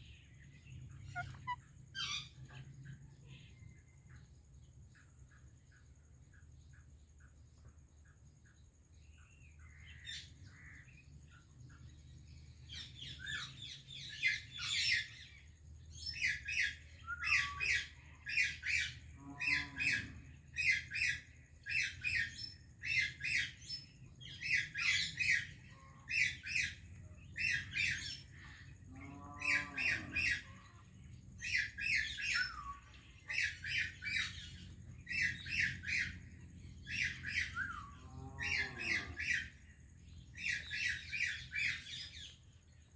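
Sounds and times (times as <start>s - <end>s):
low gliding bird call: 1.0s - 2.3s
parakeets squawking: 1.1s - 2.1s.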